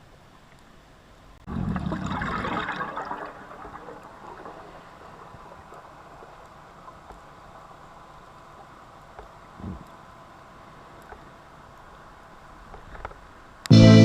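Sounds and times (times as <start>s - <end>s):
water gushing and gurgling: 1.4s - 7.9s.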